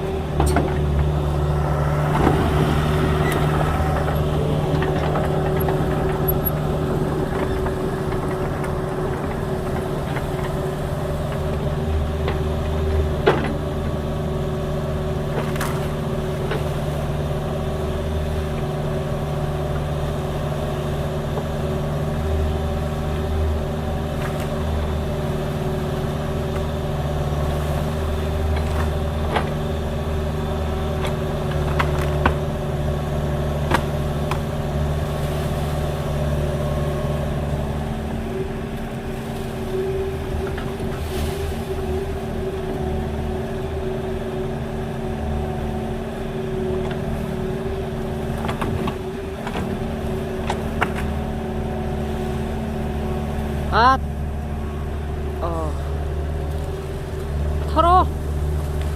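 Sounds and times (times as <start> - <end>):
diesel excavator engine running: 0.0 - 58.9.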